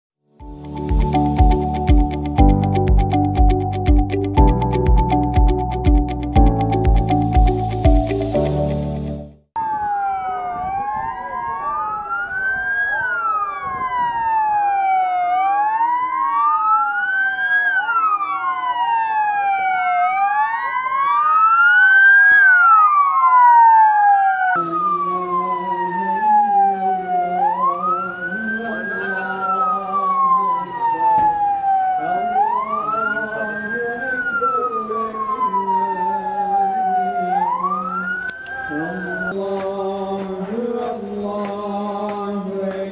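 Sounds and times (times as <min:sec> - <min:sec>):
emergency sirens wailing: 0:00.5 - 0:42.9.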